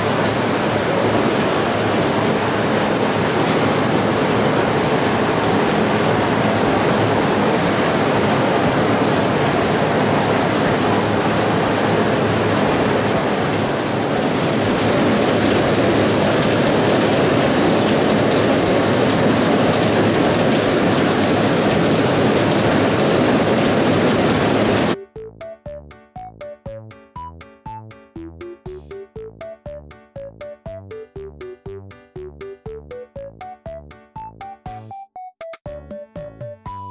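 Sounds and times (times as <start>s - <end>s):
heavy rain hissing: 0.0s - 25.0s
electronic music with plucked notes: 25.0s - 36.9s.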